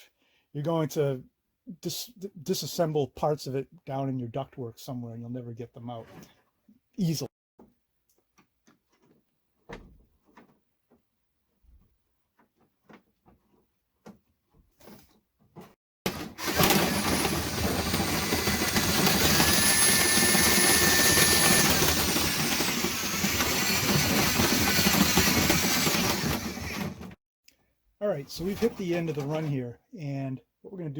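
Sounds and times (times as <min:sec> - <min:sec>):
drill motor whine: 0:16.3 - 0:27.0.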